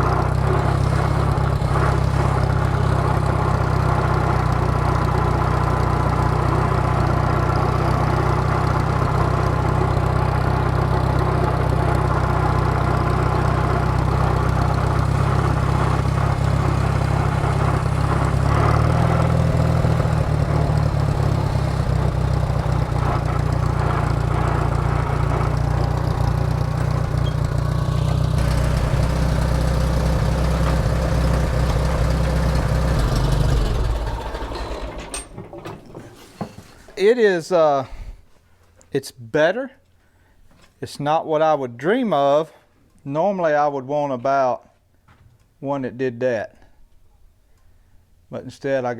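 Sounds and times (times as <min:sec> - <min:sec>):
tractor engine running: 0:00.0 - 0:37.0.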